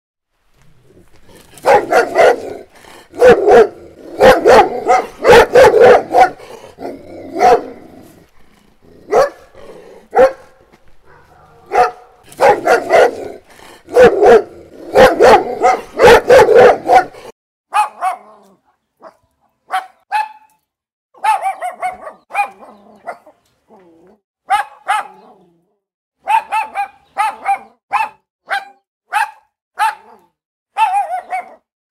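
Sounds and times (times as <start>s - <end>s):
large dog barking loudly: 1.4s - 8.1s, 8.9s - 20.5s, 21.2s - 23.4s, 24.4s - 25.4s, 26.2s - 30.2s, 30.8s - 31.7s
small dog barking higher: 1.6s - 6.4s, 7.3s - 7.9s, 9.1s - 9.5s, 10.1s - 20.5s, 21.2s - 23.4s, 24.4s - 25.3s, 26.2s - 31.7s.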